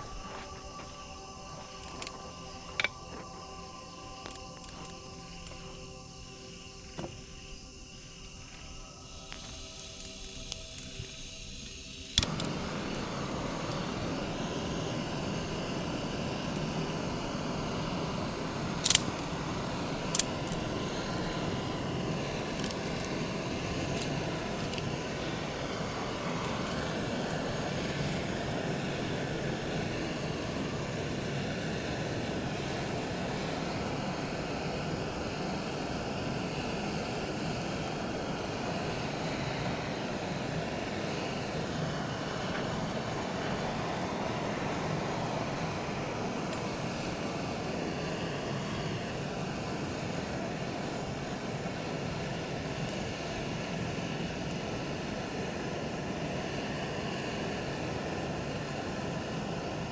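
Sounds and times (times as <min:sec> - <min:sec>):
sharp clicks: 0:18.8 - 0:19.3.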